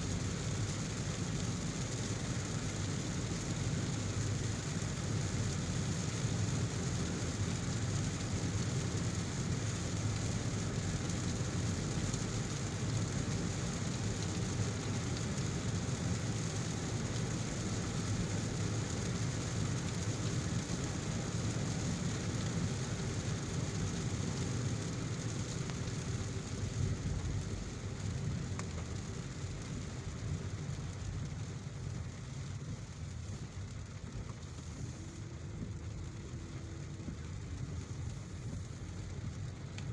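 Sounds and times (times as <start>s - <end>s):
car driving on wet road: 0.0s - 39.9s
heavy rain hissing: 34.4s - 39.3s.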